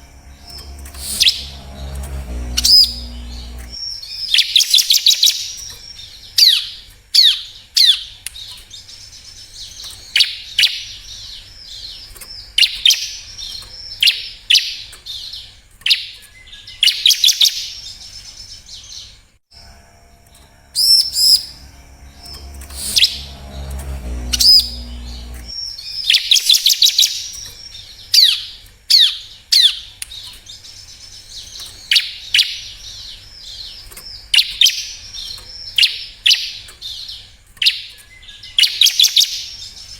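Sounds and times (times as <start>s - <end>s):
low hum with steady tones: 0.0s - 3.8s, 19.6s - 25.6s.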